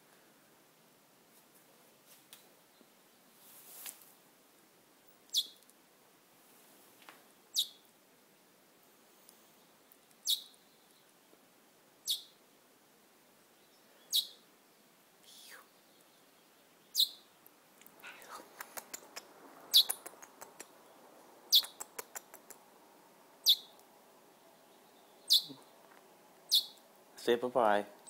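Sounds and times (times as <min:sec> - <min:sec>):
small bird chirping: 0:05.1 - 0:05.7, 0:07.5 - 0:07.9, 0:08.8 - 0:11.4, 0:12.0 - 0:12.4, 0:13.4 - 0:26.9
soft rapid ticks: 0:17.8 - 0:20.7, 0:21.6 - 0:22.6.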